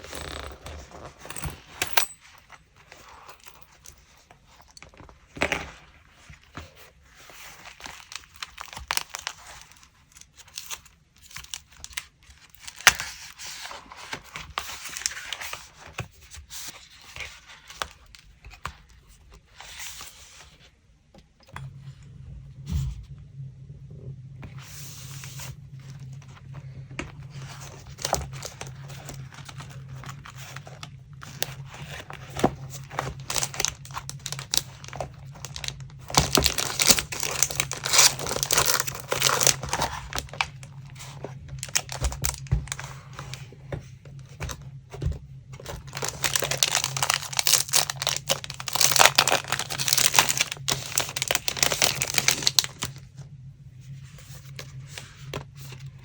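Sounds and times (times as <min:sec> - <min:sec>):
low steady hum: 0:00.0 - 0:56.0
paper crinkling and tearing: 0:06.5 - 0:20.4, 0:26.7 - 0:43.4, 0:45.6 - 0:53.0.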